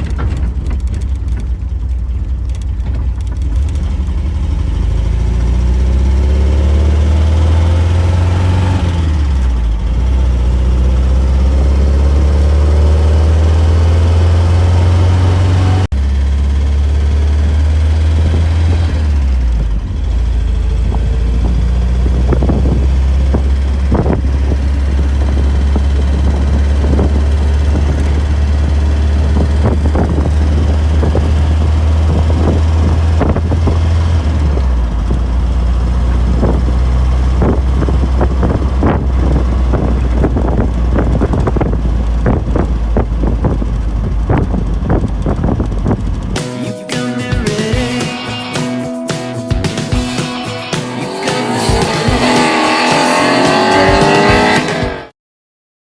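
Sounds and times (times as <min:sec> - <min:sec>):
wind buffeting microphone: 0:00.0 - 0:04.1, 0:20.6 - 0:46.4
car engine droning: 0:00.0 - 0:46.6, 0:48.9 - 0:55.1.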